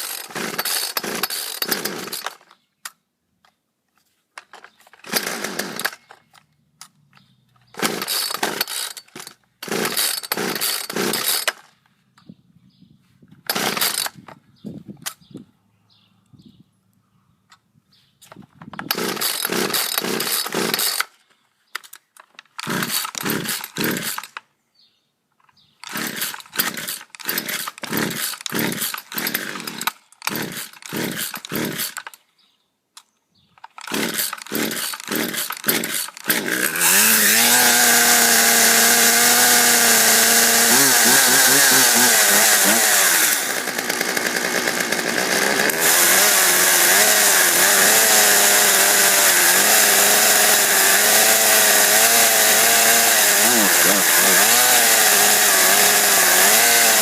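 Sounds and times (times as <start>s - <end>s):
chainsaw engine running: 0.0s - 2.4s, 5.0s - 6.1s, 7.8s - 11.6s, 13.5s - 14.0s, 18.9s - 21.0s, 22.6s - 24.3s, 25.9s - 32.0s, 33.8s - 57.0s
chainsaw starter cord pulls: 0.0s - 2.6s, 4.4s - 11.7s, 13.4s - 14.3s, 18.6s - 21.2s, 21.8s - 24.4s, 25.8s - 32.2s, 33.6s - 57.0s.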